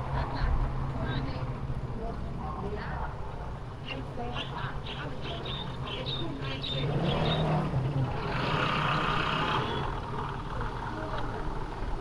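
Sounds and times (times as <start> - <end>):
motor vehicle passing: 3.9 - 12.0.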